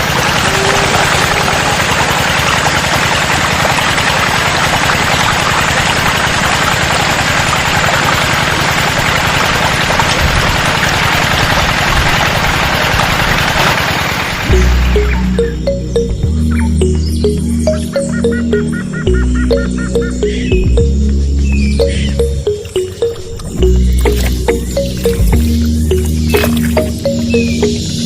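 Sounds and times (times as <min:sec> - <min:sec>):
small water pump motor rattling: 0:00.0 - 0:15.0.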